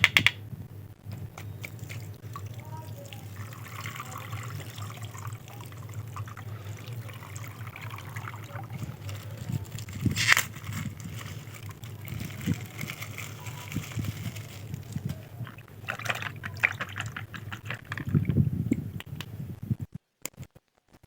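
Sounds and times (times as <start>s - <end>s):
handling knocks and clicks: 0.0s - 0.4s
water sloshing and trickling: 1.5s - 18.5s.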